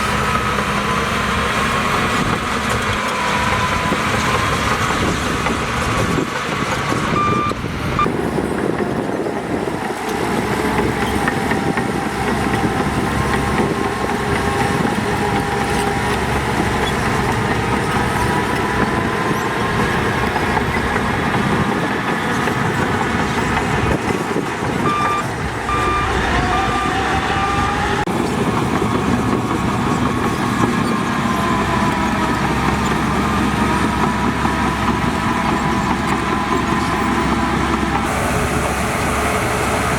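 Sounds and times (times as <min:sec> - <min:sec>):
heavy diesel machinery running: 0:00.0 - 0:39.9
reversing alarm beeps: 0:07.1 - 0:08.2, 0:24.8 - 0:28.0.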